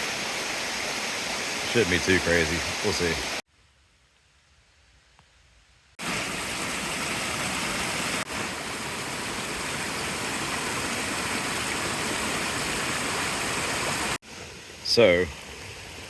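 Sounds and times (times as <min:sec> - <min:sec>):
creek in flood rushing: 0:00.0 - 0:03.4, 0:06.0 - 0:16.0.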